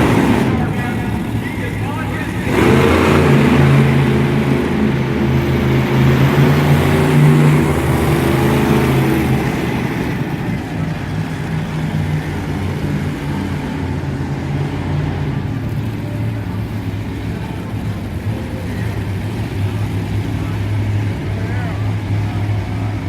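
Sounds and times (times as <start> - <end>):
monster truck engine running: 0.0 - 23.0.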